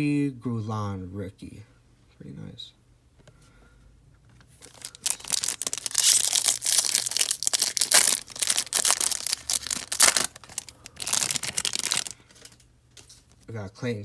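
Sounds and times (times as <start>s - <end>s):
foil wrapper crinkling and tearing: 4.6s - 12.6s.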